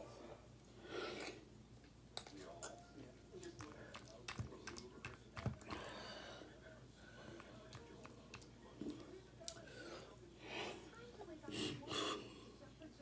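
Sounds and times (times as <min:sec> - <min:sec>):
chewing with wet clicks: 0:02.2 - 0:02.8, 0:03.4 - 0:05.8, 0:07.4 - 0:09.7
lip smacks: 0:03.6 - 0:05.8.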